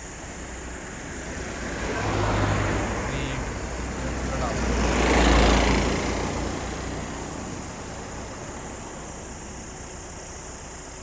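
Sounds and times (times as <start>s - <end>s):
traffic noise: 0.0s - 11.0s
loud engine passing: 0.9s - 7.9s.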